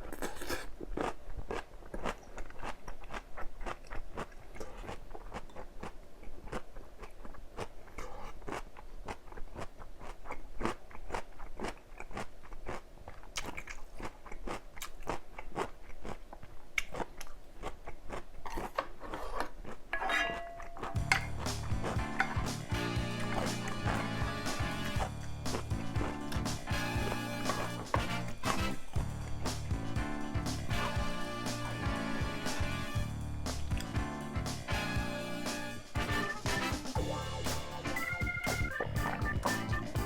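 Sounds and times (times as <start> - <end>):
chewing crunchy vegetables: 0.0 - 20.0, 20.7 - 34.9
music: 21.0 - 40.0.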